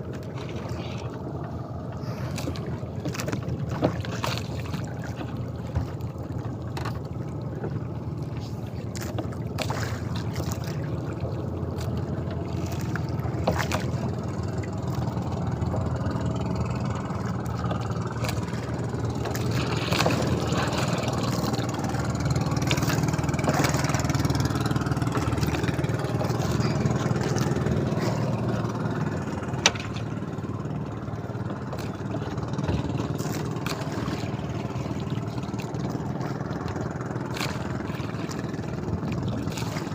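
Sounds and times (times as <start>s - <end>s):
boat engine running: 0.0s - 39.9s
knocks on hull: 3.1s - 6.0s, 28.2s - 30.3s.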